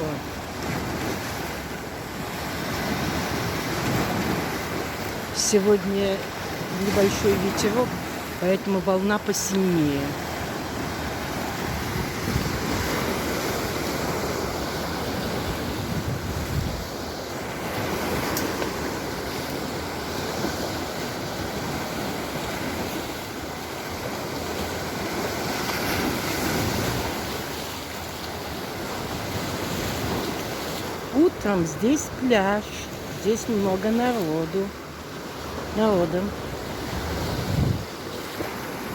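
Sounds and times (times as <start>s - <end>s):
waves breaking on shore: 0.0s - 38.9s
wind buffeting microphone: 11.0s - 14.2s, 15.1s - 17.0s, 36.5s - 38.0s.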